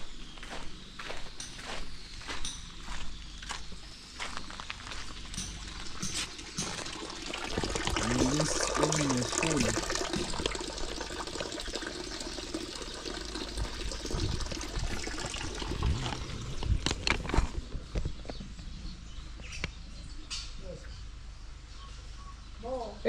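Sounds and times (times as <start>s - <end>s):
water running with hiss: 5.7s - 16.6s.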